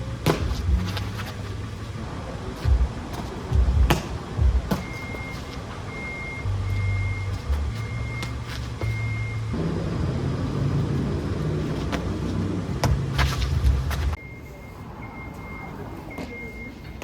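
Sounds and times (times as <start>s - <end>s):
reversing alarm beeping: 0.0s - 10.9s, 14.1s - 17.0s
engine rumble: 0.0s - 17.0s.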